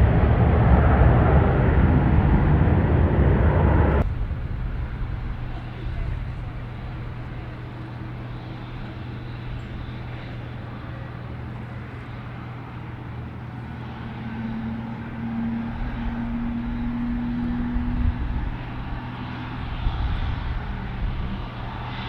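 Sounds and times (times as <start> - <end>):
distant airliner engines humming: 0.0 - 22.0.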